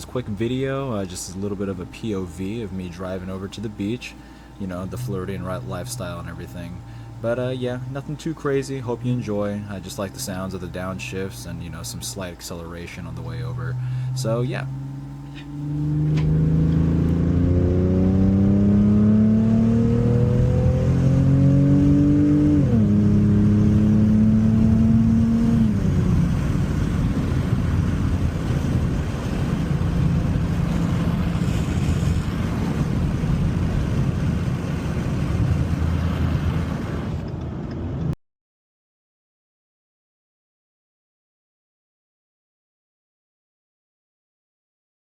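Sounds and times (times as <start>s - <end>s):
car exhaust accelerating: 4.7s - 38.2s.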